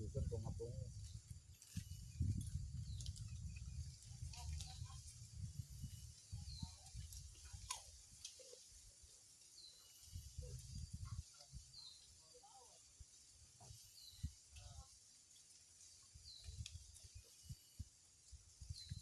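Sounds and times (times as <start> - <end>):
low rumbles on microphone: 0.0 - 7.3.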